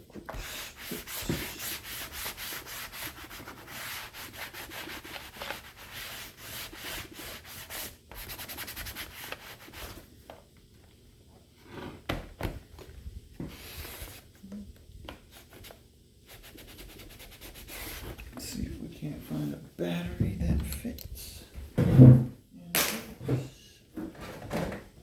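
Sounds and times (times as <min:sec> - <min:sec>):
rubbing strokes on hard surface: 0:00.3 - 0:10.0, 0:15.3 - 0:18.2.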